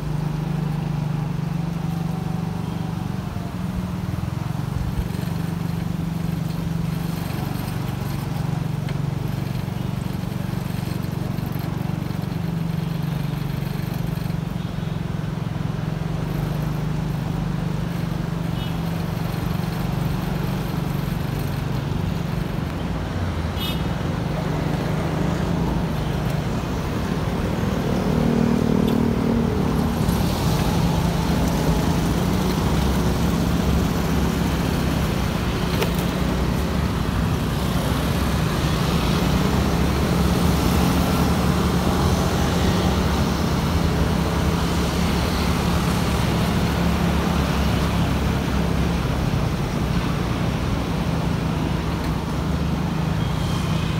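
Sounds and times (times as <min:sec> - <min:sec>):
motorcycle engine running: 0:00.0 - 0:53.2
road noise: 0:00.0 - 0:53.9.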